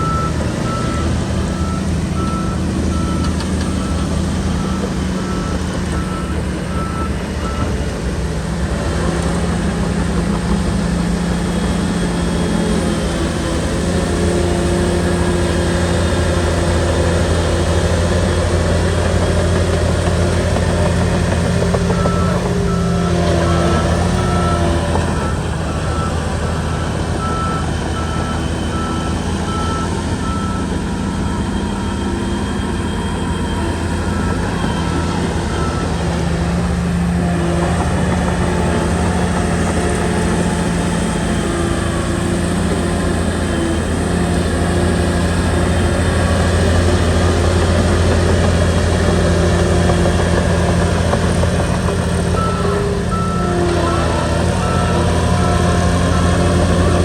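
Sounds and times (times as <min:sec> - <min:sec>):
reverse alarm beeps: 0:00.0 - 0:07.8, 0:21.9 - 0:36.2
bulldozer diesel engine running: 0:00.0 - 0:57.0.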